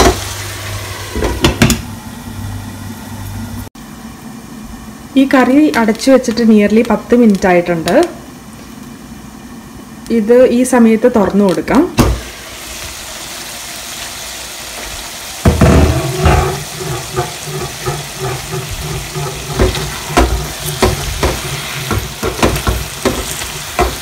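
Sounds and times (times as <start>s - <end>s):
curry sizzling in a pan: 0.0s - 3.7s, 11.9s - 24.0s
spatula scraping a pan: 15.8s - 24.0s.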